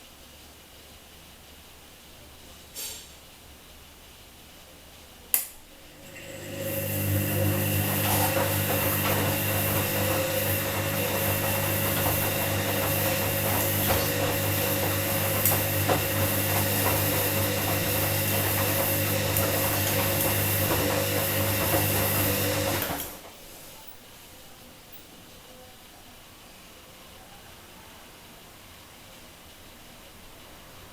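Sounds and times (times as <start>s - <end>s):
washing machine running: 5.7s - 24.0s.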